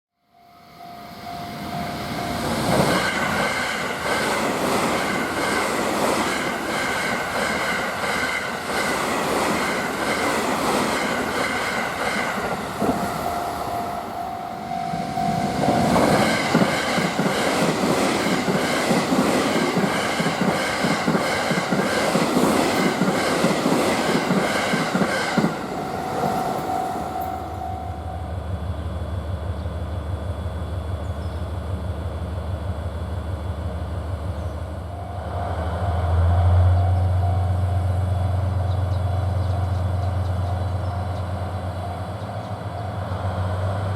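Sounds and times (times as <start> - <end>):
train wheels clattering on rails: 2.3 - 13.7, 14.9 - 27.4
steady low hum: 26.7 - 40.9.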